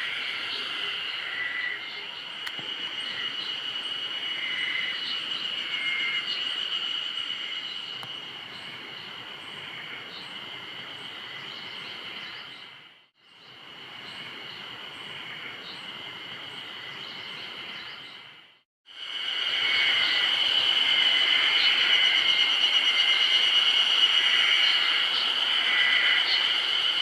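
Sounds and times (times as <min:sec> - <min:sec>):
short high insect calls: 0:00.0 - 0:12.4, 0:19.0 - 0:27.0
insects trilling: 0:00.0 - 0:12.6, 0:18.9 - 0:27.0.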